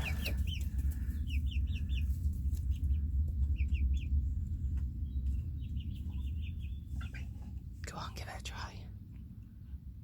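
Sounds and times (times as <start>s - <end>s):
young chickens chirping: 0.0s - 7.8s
low steady rumble: 0.0s - 10.0s.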